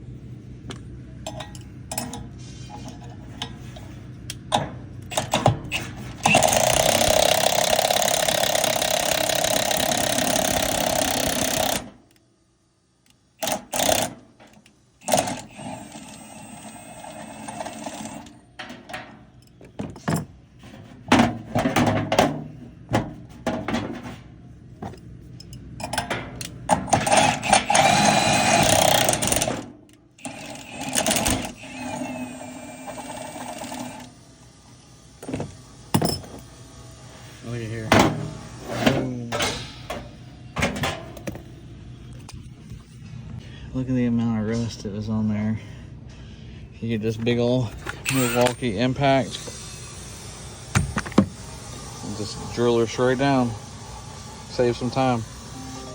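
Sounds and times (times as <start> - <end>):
impact driver rattling: 5.1 - 11.9, 13.4 - 14.2.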